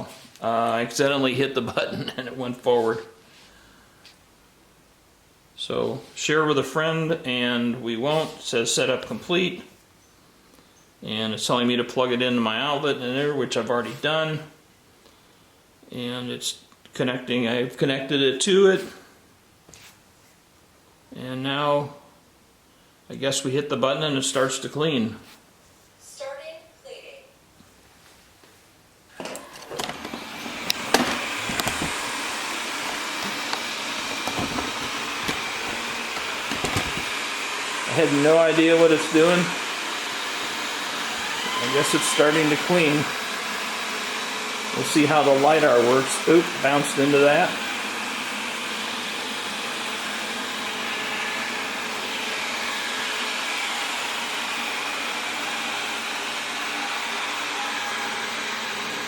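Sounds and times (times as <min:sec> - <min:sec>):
robot vacuum whirring: 0:29.2 - 0:59.0.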